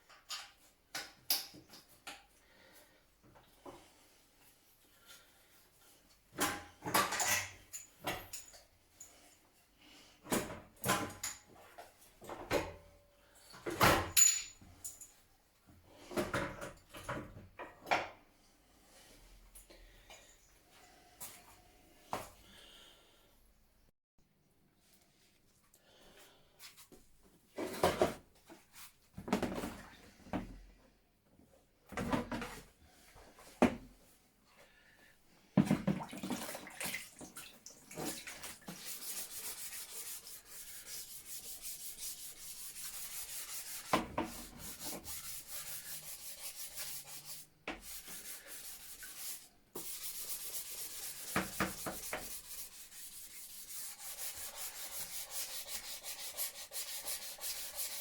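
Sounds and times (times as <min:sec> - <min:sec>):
abrasive sanding: 0:38.8 - 0:58.0.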